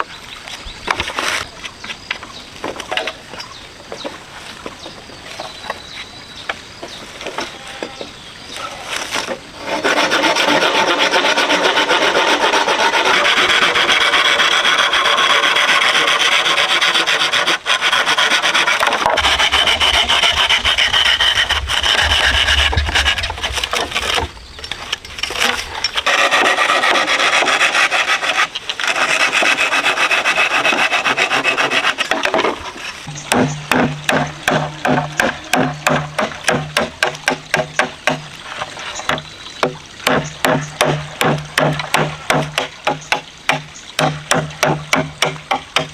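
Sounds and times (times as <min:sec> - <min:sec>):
rasping on wood: 0:09.6 - 0:24.4, 0:25.0 - 0:38.2.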